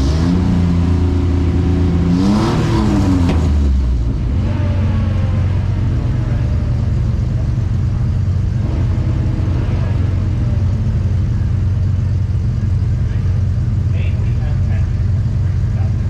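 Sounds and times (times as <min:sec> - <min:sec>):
truck engines revving: 0:00.0 - 0:16.0.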